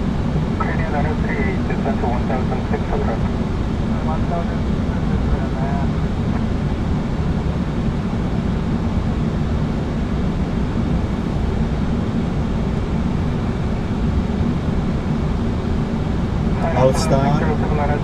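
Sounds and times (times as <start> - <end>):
aircraft cockpit rushing noise: 16.4 - 18.0.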